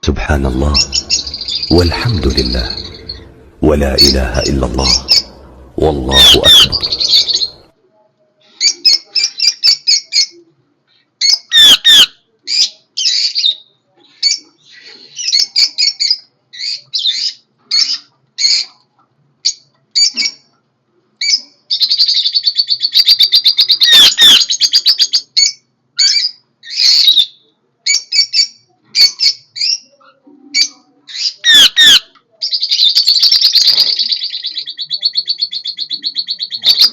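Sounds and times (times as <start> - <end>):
loud sharp bird calls: 0.1 - 7.7, 31.3 - 36.9
warbling bird call: 0.7 - 3.5, 4.7 - 7.6.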